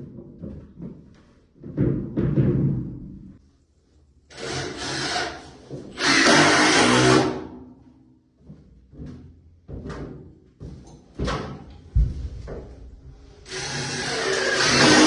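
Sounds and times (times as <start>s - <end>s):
power drill driving screws into wood: 4.3s - 7.4s, 13.5s - 15.0s
low thump: 11.9s - 12.9s.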